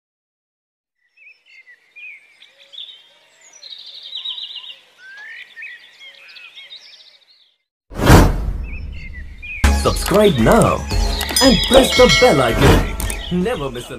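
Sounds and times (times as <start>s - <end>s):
birds chirping and singing: 1.0s - 7.6s, 8.6s - 13.9s
bird fast trill: 8.6s - 13.6s.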